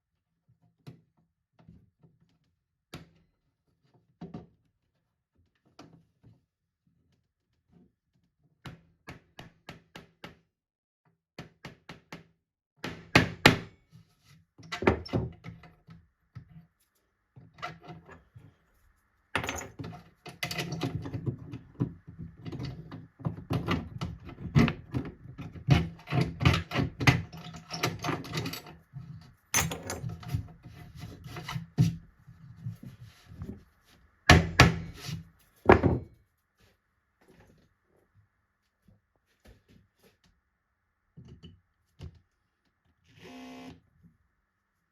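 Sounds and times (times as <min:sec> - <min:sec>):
wood knocking and thumping: 0:35.7 - 0:36.1.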